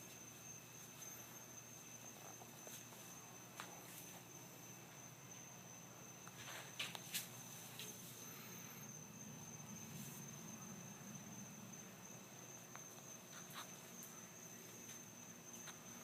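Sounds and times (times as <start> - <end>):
soft scuffs and clicks: 6.3 - 8.1.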